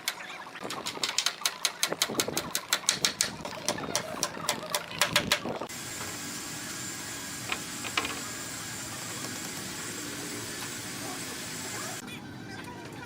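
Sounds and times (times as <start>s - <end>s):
machine hiss with high whine: 5.7s - 12.0s.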